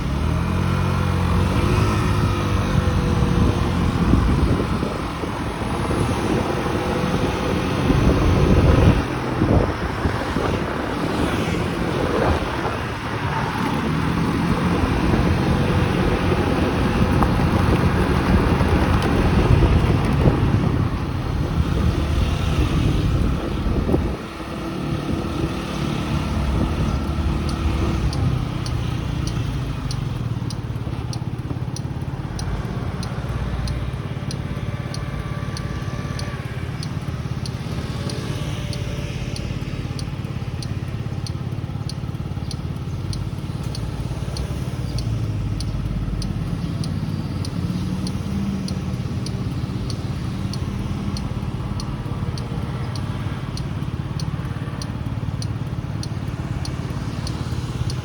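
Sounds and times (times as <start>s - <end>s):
motorcycle engine running: 0.0s - 58.0s
road and wind noise: 0.0s - 58.0s
faint high ticking: 24.4s - 58.0s.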